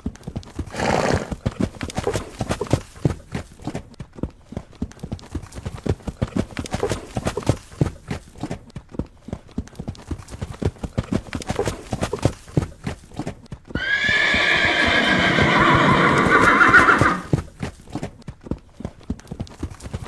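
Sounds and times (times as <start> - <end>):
horse hooves clip-clopping: 0.0 - 20.0
horse whinny: 0.7 - 1.4, 13.8 - 17.4.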